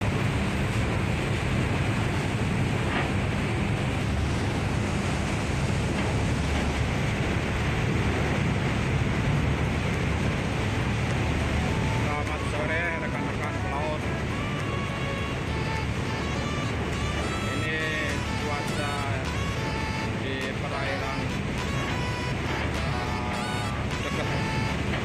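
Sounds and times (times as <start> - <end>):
wind buffeting microphone: 0.0 - 18.2
low rumble: 0.0 - 18.3
waves washing around ship: 0.0 - 25.0.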